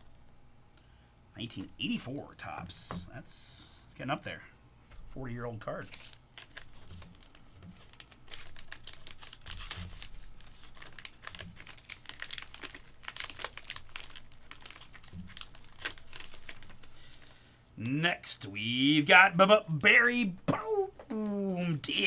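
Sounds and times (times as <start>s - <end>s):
plastic crinkling: 5.8s - 17.7s.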